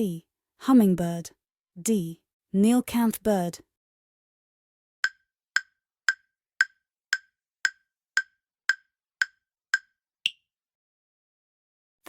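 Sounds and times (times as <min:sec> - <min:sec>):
short sharp timer ticks: 0:05.0 - 0:10.4.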